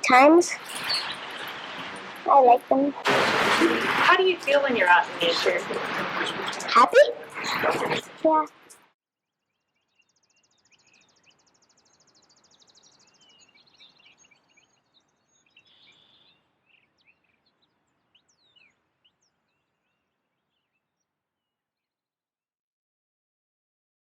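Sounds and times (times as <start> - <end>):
birds chirping and calling: 0.0 - 8.8, 10.7 - 18.7
fast even bird trill: 0.6 - 1.9.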